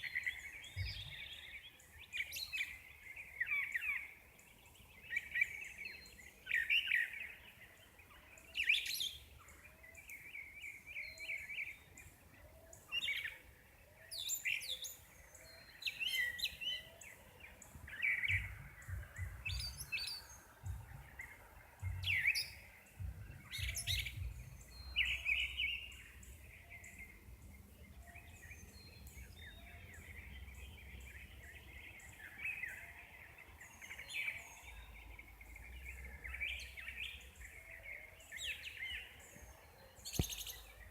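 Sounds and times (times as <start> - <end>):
birds chirping and singing: 0.0 - 40.9
low rumble: 18.3 - 19.8, 20.6 - 21.2, 21.8 - 22.2, 23.0 - 24.7.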